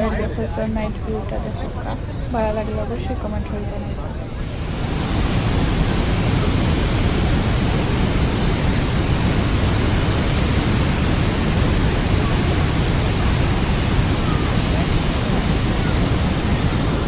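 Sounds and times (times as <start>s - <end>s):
waterfall roaring: 4.4s - 17.0s.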